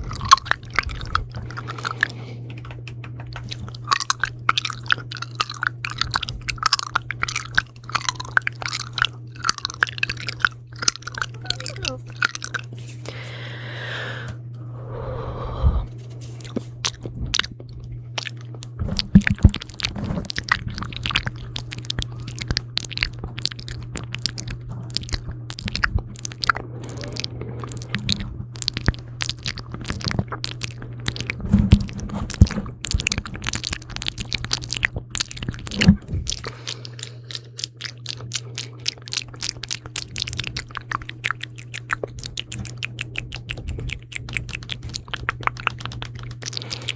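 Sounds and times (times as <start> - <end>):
wet mouth clicks and smacks: 0.0 - 12.7, 16.4 - 46.9.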